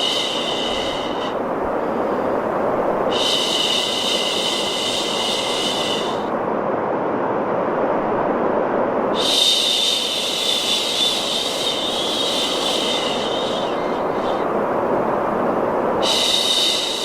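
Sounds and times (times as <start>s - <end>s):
steady white noise: 0.0s - 17.0s
woman shushing: 3.1s - 6.2s, 9.2s - 14.5s, 16.0s - 17.0s.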